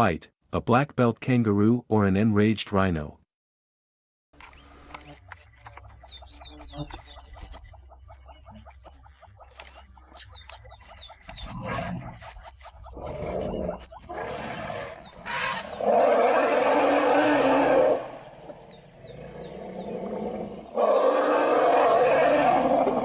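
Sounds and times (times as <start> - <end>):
large animal roaring: 13.1 - 23.0.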